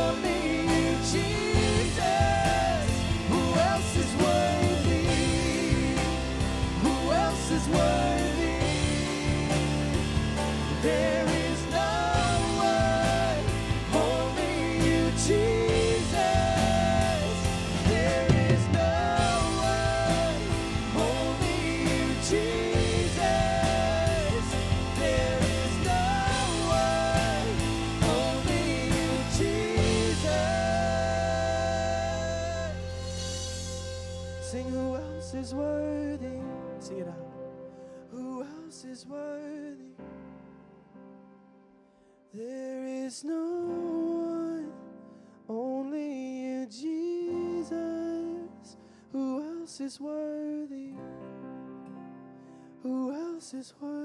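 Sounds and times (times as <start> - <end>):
drums: 0.0 - 35.5
bass: 0.0 - 37.0.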